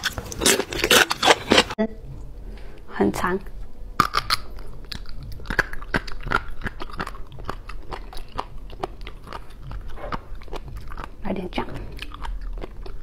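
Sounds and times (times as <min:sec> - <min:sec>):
crunchy chewing: 0:00.0 - 0:01.8, 0:04.0 - 0:13.0.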